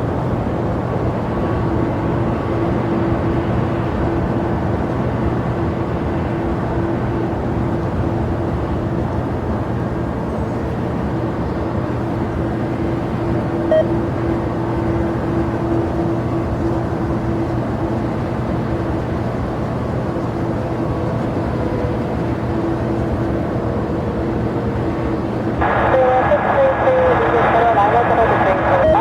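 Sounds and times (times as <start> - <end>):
aircraft engines droning: 0.0 - 29.0
faint short beep: 13.7 - 14.0, 28.8 - 29.0.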